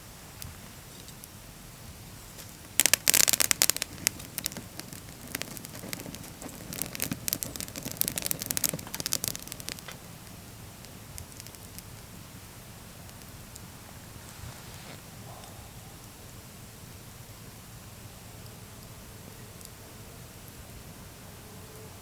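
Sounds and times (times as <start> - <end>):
campfire wood crackling: 0.7 - 15.1.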